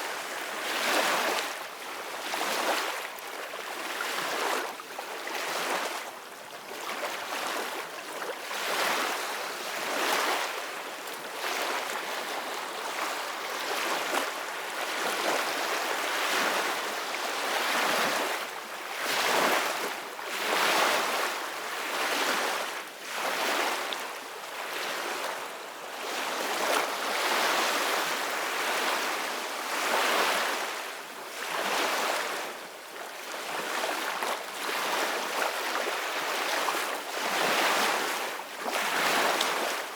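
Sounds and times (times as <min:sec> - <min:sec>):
ocean waves breaking on shore: 0:11.4 - 0:39.9.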